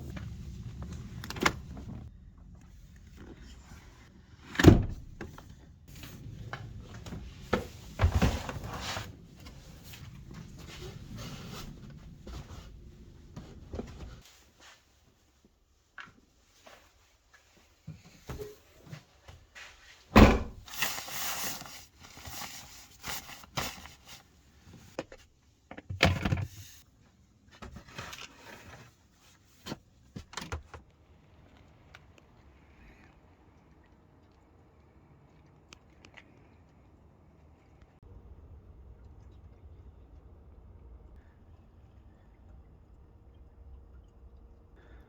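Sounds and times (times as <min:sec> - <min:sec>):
loud thunks: 0:20.2 - 0:20.6.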